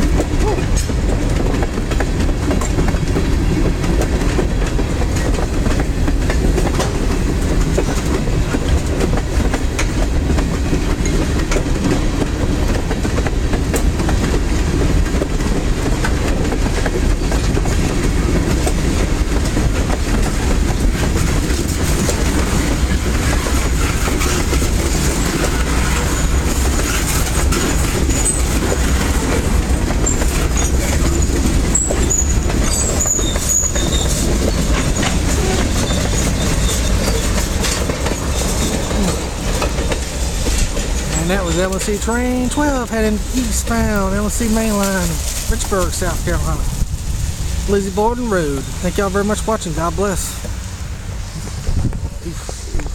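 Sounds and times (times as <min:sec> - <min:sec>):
freight train wheels clattering: 0:00.0 - 0:52.9
train wheel squeals: 0:23.2 - 0:28.9, 0:30.0 - 0:39.2.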